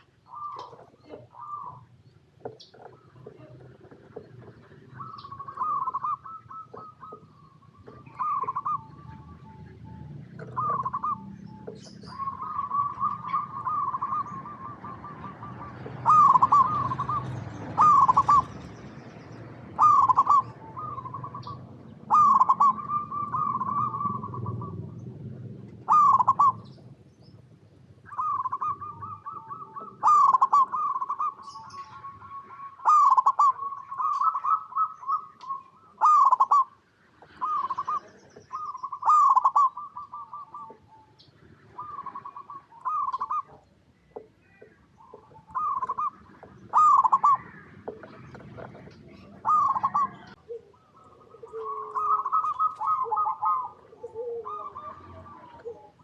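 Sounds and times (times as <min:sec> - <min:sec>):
dove cooing: 0:00.0 - 0:56.0
faint high bird chirps: 0:28.1 - 0:56.0.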